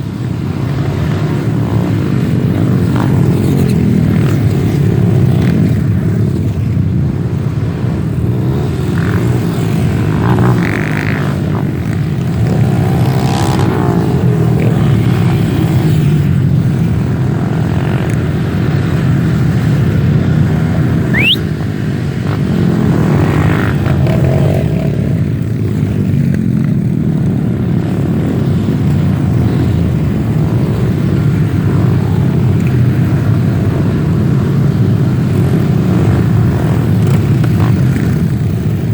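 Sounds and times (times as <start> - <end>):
motorcycle engines running: 0.0 - 38.9
rising whistle: 21.1 - 21.5.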